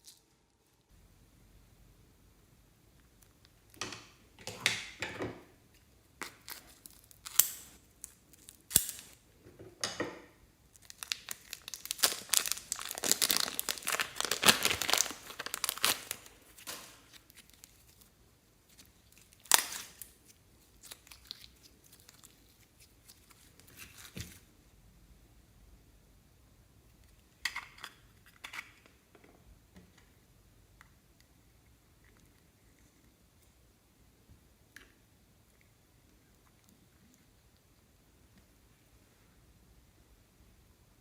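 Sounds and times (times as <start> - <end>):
slime and plastic crinkling: 10.7 - 24.5.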